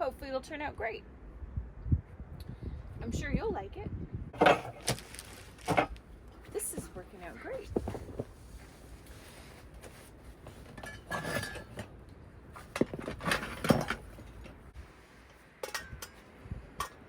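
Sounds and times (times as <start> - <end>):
dishes and metal utensils clinking: 10.8 - 11.9.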